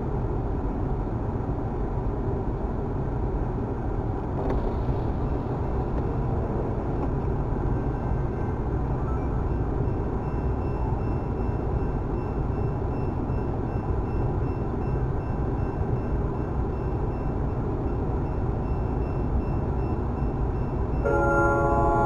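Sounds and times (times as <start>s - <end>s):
air conditioning fan hiss: 0.0s - 22.0s
car idling: 21.1s - 22.0s.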